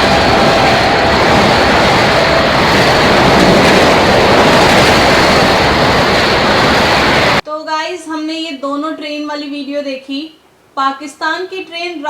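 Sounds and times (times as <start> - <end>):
train horn: 0.0 - 4.9
train rushing past: 0.0 - 7.4.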